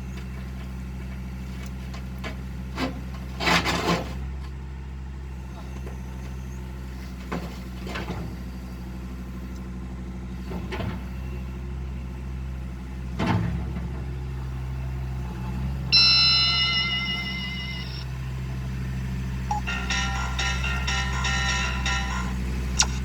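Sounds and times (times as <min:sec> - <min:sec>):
diesel engine running: 0:00.0 - 0:23.0
loud high-pitched tone: 0:15.9 - 0:18.3, 0:19.5 - 0:23.0
metallic clanks: 0:19.5 - 0:23.0.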